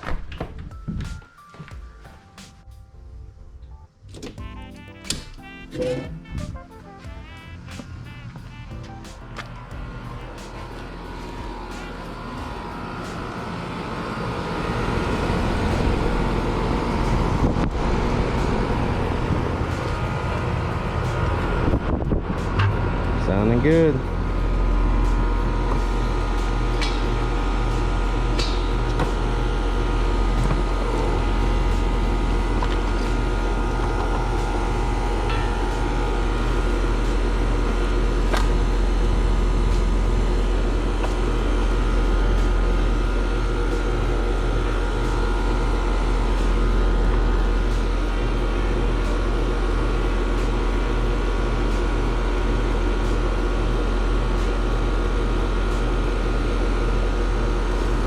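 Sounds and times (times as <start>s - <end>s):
air conditioner unit humming: 0.0s - 58.0s
condenser fan rushing: 3.9s - 58.0s.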